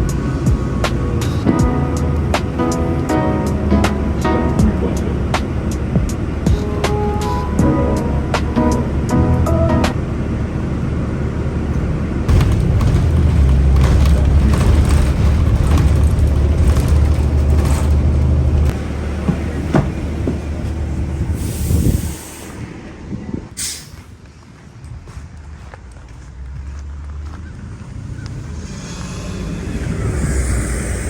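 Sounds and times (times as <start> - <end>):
low vehicle rumble: 0.0 - 31.0
brief hiss: 23.6 - 24.0.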